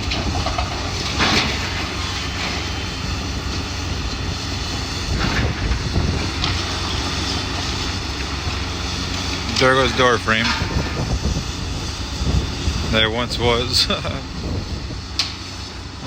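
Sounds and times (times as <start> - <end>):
debris crashing down: 0.0 - 2.8
heavy machine engine running: 0.0 - 16.0.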